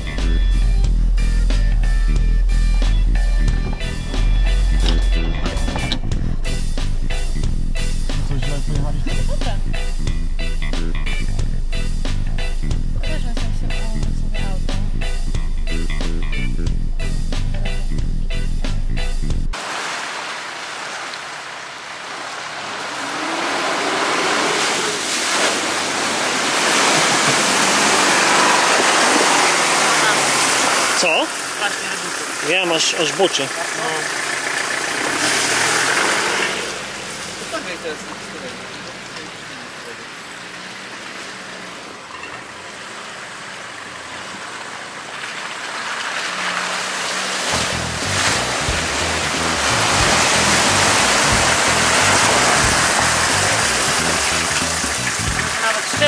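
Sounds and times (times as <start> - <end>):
faint vehicle engine: 0.0 - 19.6, 21.6 - 56.0
rushing hiss: 19.6 - 37.5
rushing water: 19.6 - 56.0.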